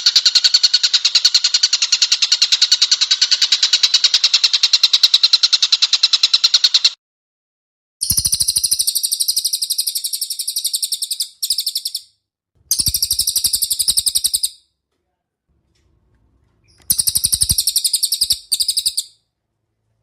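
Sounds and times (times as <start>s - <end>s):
rapid bird trill: 8.0s - 12.1s, 12.7s - 14.6s, 16.7s - 19.2s.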